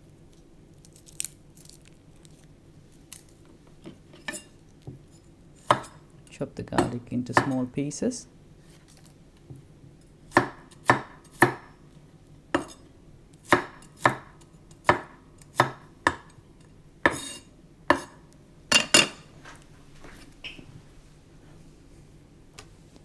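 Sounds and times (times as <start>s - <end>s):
knife chopping on cutting board: 5.6s - 6.1s, 6.7s - 7.7s, 10.3s - 11.8s, 12.5s - 16.4s, 17.0s - 19.2s.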